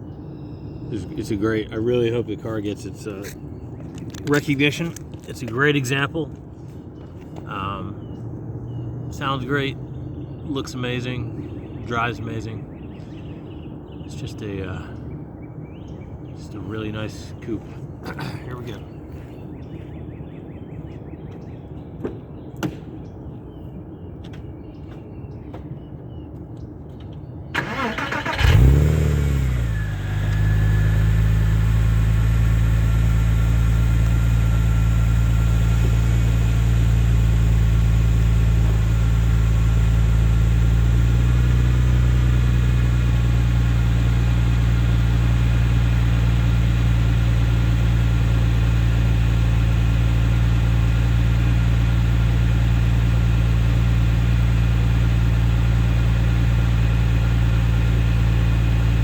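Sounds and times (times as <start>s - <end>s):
starter cranking: 27.6s - 29.0s
engine revving and fast idling: 27.6s - 59.0s.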